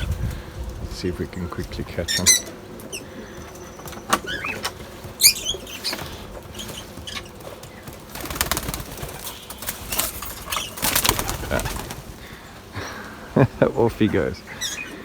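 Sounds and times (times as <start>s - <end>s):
bird chirps: 2.0s - 8.0s, 8.9s - 12.7s, 14.2s - 15.0s
pigeon wings flapping: 2.5s - 13.2s.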